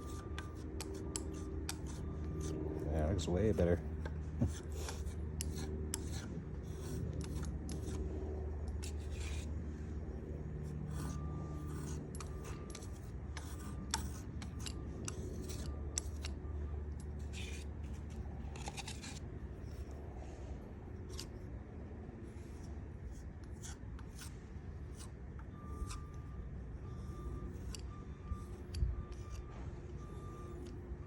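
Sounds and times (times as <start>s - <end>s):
putty knife scraping wood: 0.0s - 2.6s, 3.2s - 8.0s, 8.7s - 9.5s, 10.7s - 16.4s, 17.2s - 20.0s, 22.5s - 26.2s
steady low hum: 0.0s - 31.0s.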